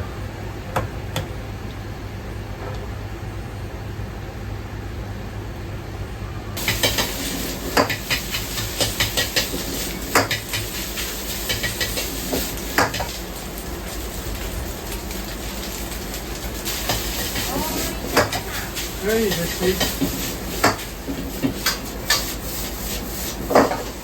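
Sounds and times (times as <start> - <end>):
food sizzling in hot pan: 6.6 - 24.0
metal utensils scraping pan: 16.8 - 22.7.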